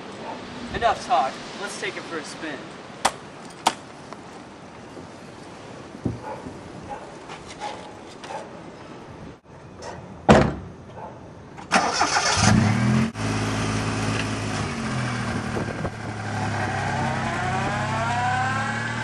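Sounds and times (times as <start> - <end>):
loud thump: 10.3 - 10.7
engine cranking and idling: 11.6 - 15.3.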